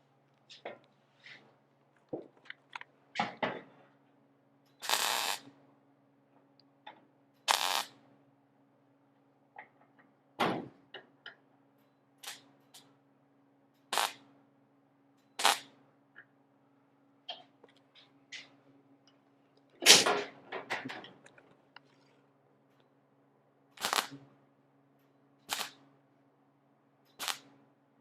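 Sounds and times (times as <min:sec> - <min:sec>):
crackling bursts: 0:04.8 - 0:05.5, 0:07.5 - 0:08.0, 0:13.9 - 0:14.2, 0:15.4 - 0:15.7, 0:23.8 - 0:24.2, 0:25.5 - 0:25.8, 0:27.2 - 0:27.5.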